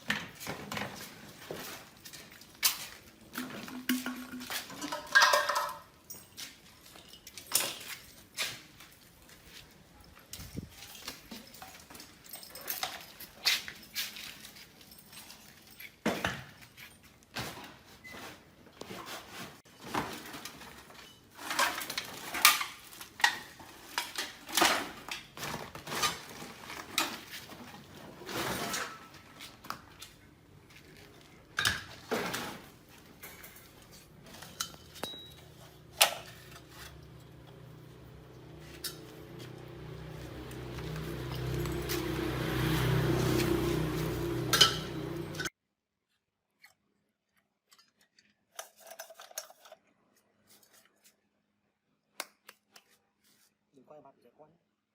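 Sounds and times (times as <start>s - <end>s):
metal parts and tools clanking: 0.1s - 8.8s, 10.0s - 16.0s, 19.1s - 30.2s, 30.9s - 45.5s, 47.8s - 49.8s.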